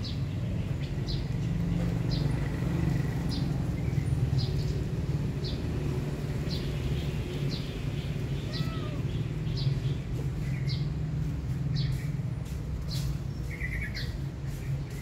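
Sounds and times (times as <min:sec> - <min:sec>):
bird chirping: 0:12.8 - 0:15.0.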